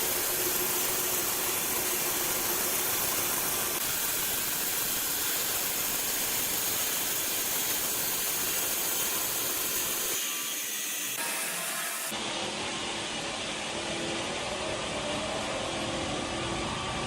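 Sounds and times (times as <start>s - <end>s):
sawmill machinery hissing: 0.0s - 12.2s.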